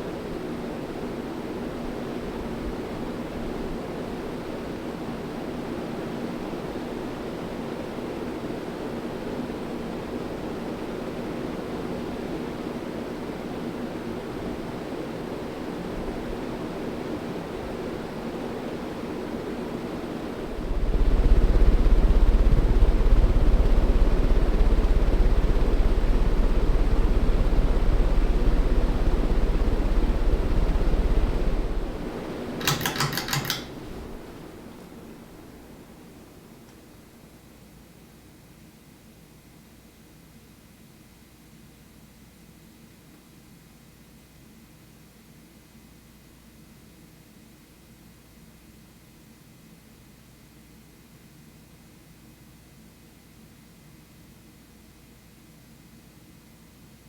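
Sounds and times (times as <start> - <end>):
ceiling fan whooshing: 19.8 - 36.7
deep low rumble: 20.6 - 32.0.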